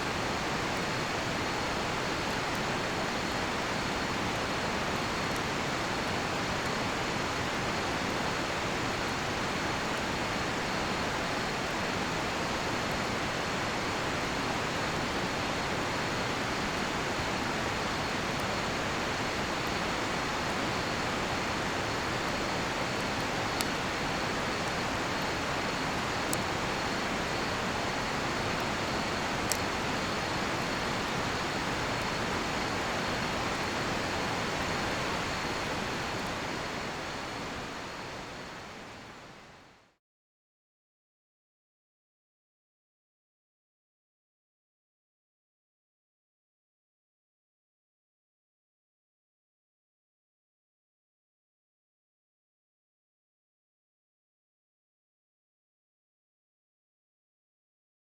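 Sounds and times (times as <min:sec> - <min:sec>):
crickets trilling: 0:14.1 - 0:39.5
campfire popping: 0:17.8 - 0:37.5.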